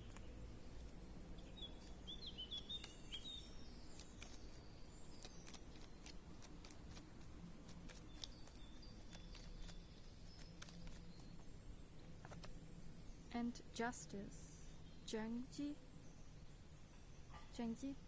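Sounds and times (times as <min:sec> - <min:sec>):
birds chirping and calling: 0:00.0 - 0:06.5
thin whistled bird notes: 0:01.4 - 0:06.3, 0:07.9 - 0:12.1.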